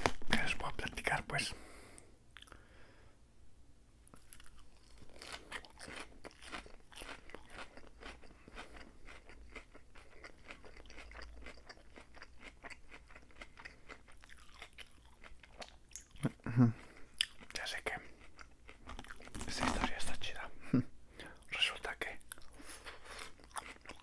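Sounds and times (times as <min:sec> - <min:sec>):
crunchy chewing of lettuce: 0:04.1 - 0:20.2, 0:22.3 - 0:24.0.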